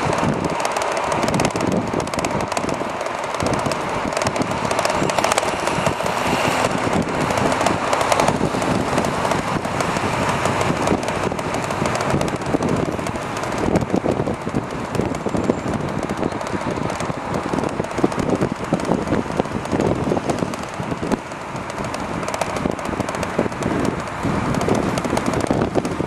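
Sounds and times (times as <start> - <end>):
tyre and road noise: 0.0 - 26.0
wind buffeting microphone: 0.0 - 26.0.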